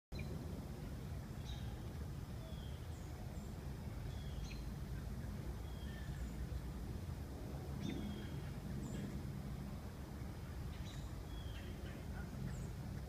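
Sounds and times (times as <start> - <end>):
steady low rumble: 0.1 - 13.0
small birds chirping: 1.3 - 6.7, 7.8 - 9.2, 10.4 - 13.0.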